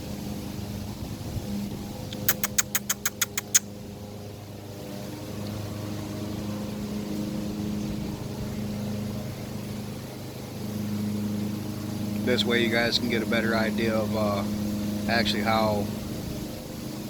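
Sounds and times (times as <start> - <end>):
low mechanical hum: 0.0 - 17.0
sharp clicks: 2.1 - 3.7.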